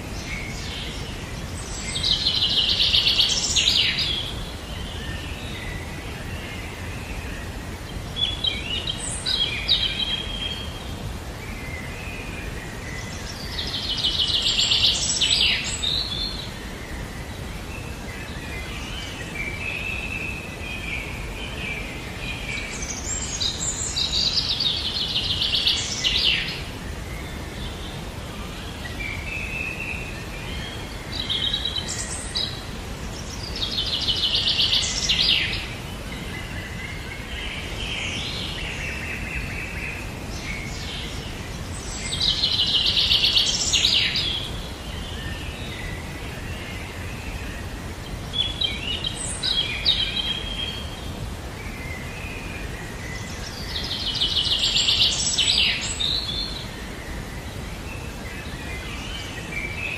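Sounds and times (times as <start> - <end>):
low background noise: 0.0 - 59.9.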